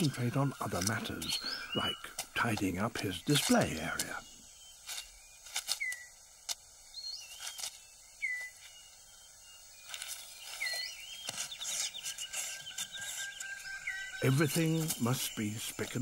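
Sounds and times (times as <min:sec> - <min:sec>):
bird whistled call: 0:04.6 - 0:06.2, 0:06.9 - 0:08.9, 0:10.3 - 0:15.4
leaf litter rustling: 0:09.8 - 0:15.3.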